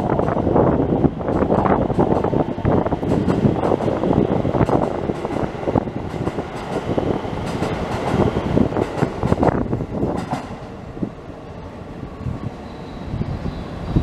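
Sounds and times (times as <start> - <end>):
electric train pulling out: 0.0 - 14.0.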